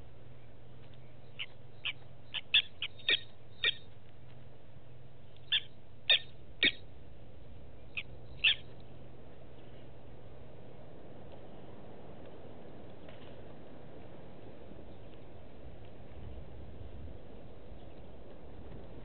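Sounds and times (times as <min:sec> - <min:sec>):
bird calling sharp notes: 0:01.0 - 0:03.9, 0:05.4 - 0:06.8, 0:07.9 - 0:08.8.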